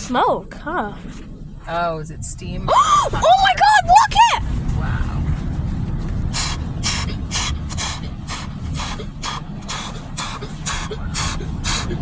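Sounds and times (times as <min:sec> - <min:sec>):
car wash machinery rumble: 0:00.0 - 0:12.0
spray hitting car: 0:03.4 - 0:12.0.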